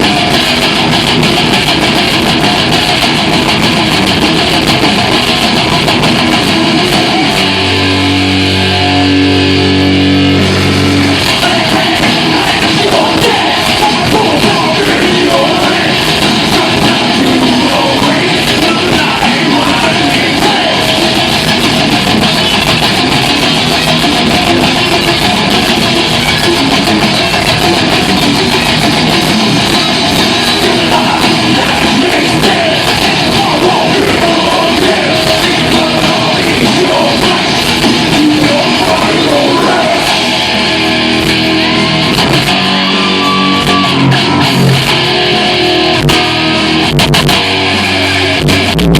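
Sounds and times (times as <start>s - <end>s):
distorted electric guitars: 0.0s - 48.9s
drums: 0.0s - 48.9s
person singing: 10.5s - 21.4s, 29.6s - 40.6s.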